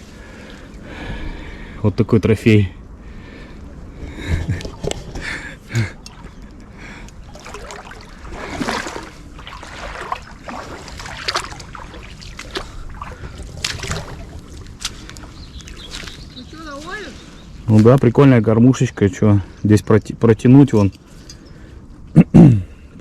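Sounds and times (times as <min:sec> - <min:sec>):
river water splashing: 0:03.1 - 0:17.6.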